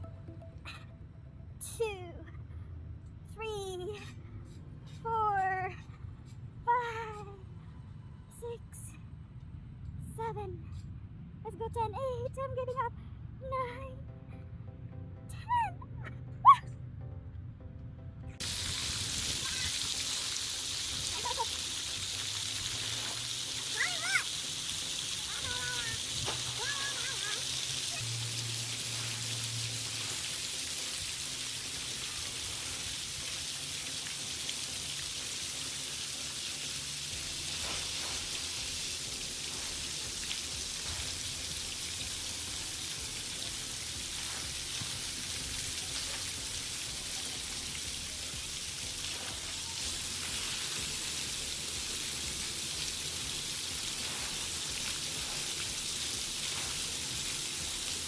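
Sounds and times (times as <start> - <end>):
water jets spraying on pavement: 18.4 - 58.0.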